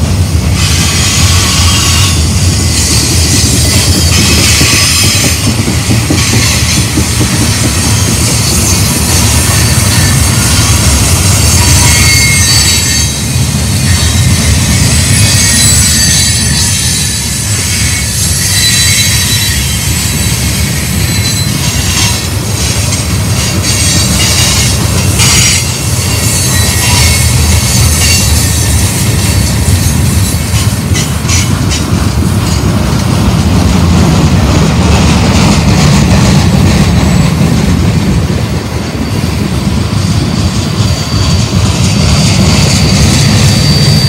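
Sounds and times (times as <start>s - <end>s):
train cars rumbling: 0.0s - 44.0s
wheel flange squeal: 7.6s - 31.6s, 39.0s - 44.0s.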